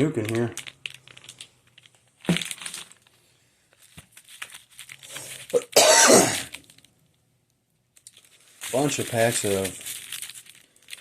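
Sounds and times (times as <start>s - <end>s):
paper packs rustling and crinkling: 0.0s - 6.9s, 8.0s - 11.0s
person coughing: 5.6s - 6.5s.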